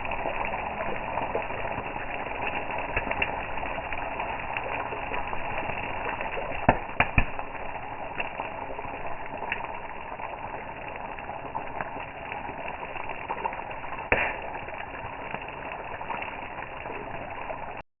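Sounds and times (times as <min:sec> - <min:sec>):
campfire crackling: 0:00.0 - 0:17.8
loud fire pops: 0:06.6 - 0:07.5, 0:14.0 - 0:14.8.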